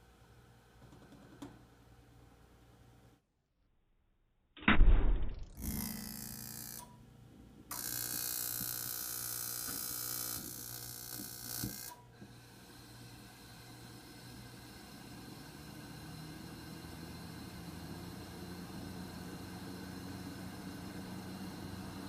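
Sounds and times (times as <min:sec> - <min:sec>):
heater clicks: 0:07.7 - 0:12.4
fan heater humming: 0:13.2 - 0:22.0.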